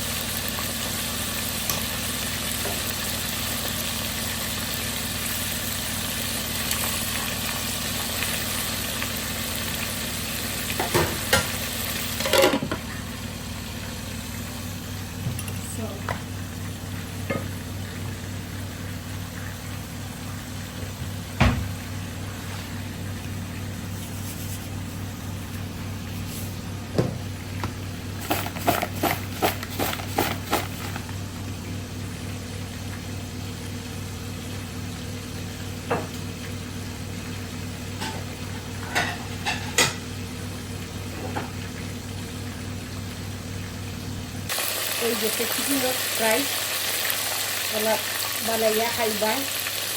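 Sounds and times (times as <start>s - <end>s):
chicken sizzling in oil: 0.0s - 49.9s.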